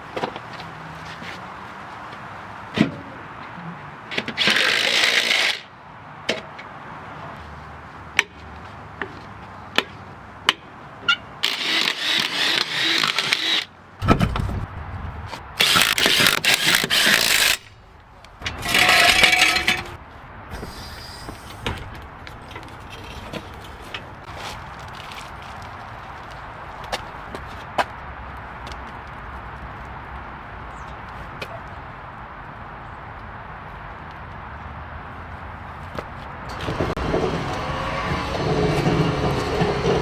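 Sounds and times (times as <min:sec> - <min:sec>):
metal clicks and knocks: 0:18.2 - 0:20.0
hissing bursts: 0:20.5 - 0:21.6.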